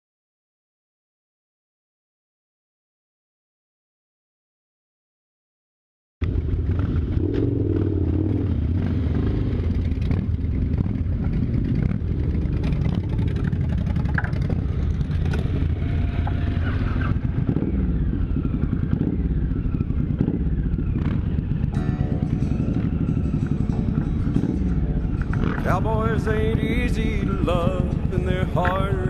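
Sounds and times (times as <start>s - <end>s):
motorcycle engine running: 6.2s - 29.0s.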